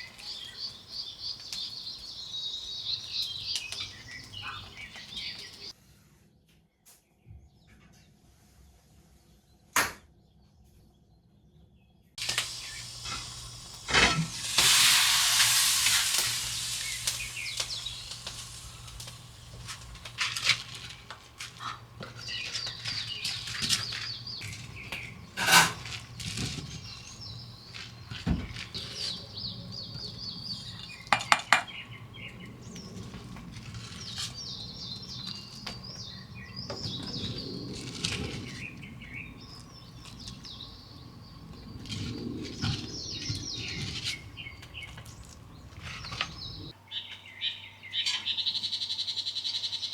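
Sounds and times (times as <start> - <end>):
birds chirping: 0.0 - 5.7, 12.2 - 49.9
dishes and utensils clinking: 12.2 - 29.2
loud hiss: 12.2 - 32.8.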